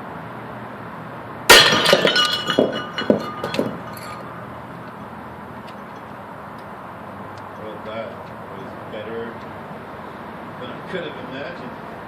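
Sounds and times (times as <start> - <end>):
porcelain toilet crashing: 1.5 - 3.8
shards clattering: 1.5 - 4.4.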